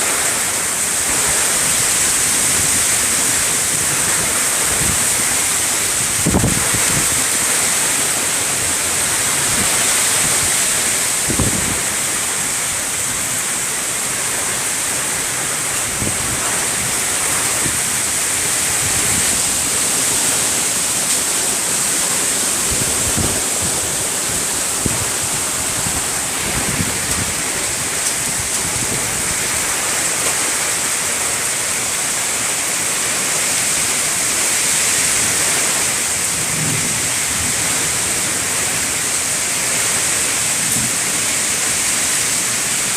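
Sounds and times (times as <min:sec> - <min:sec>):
heavy rain pouring: 0:00.0 - 0:42.9
low thunder rumbles: 0:11.2 - 0:12.0, 0:22.6 - 0:29.8, 0:36.4 - 0:38.3.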